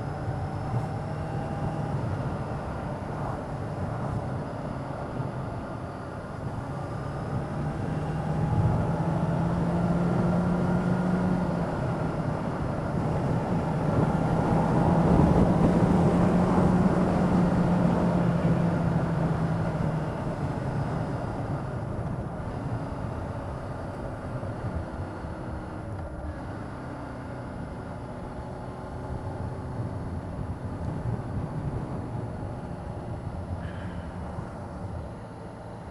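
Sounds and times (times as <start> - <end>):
wind and road noise: 0.0 - 35.9.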